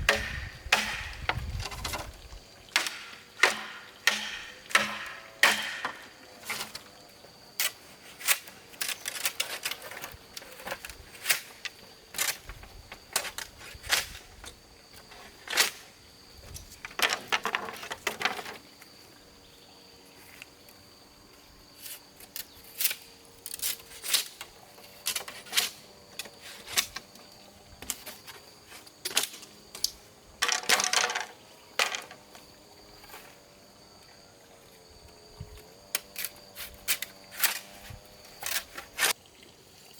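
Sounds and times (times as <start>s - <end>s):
knocks and clicks of hand work: 0.0s - 1.5s
high insect drone: 0.0s - 39.9s.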